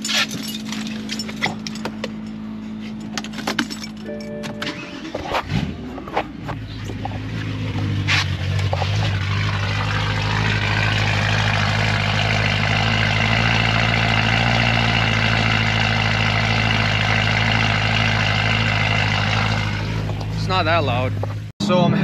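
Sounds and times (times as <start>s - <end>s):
car engine idling: 0.4s - 22.0s.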